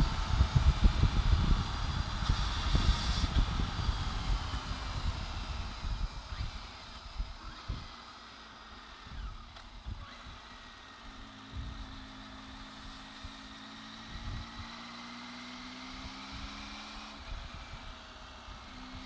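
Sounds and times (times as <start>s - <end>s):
wind buffeting microphone: 0.0s - 8.0s
motorcycle engine running: 0.0s - 19.0s.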